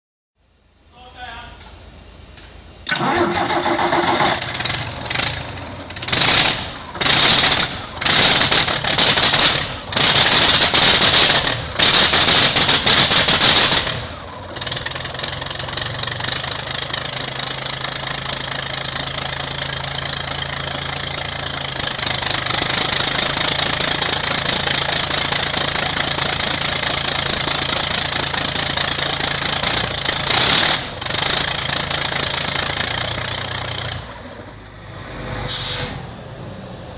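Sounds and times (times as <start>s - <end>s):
engine running steadily: 1.1s - 36.9s
bus engine starter cranking: 2.8s - 9.5s
loud engine revving: 2.9s - 16.5s, 21.7s - 36.9s.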